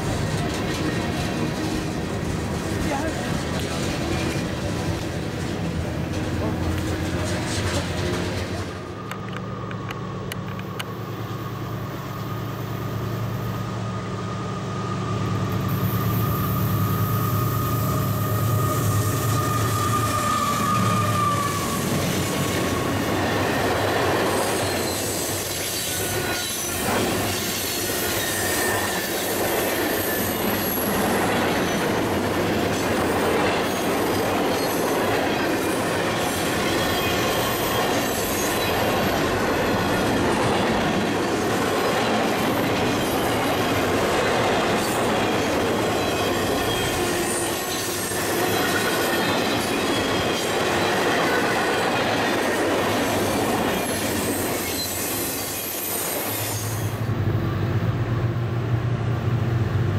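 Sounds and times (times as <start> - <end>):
wheels squealing on rail: 0.0 - 9.1, 10.6 - 57.7
locomotive engine humming: 0.0 - 29.0
train wheel noise: 0.0 - 59.9.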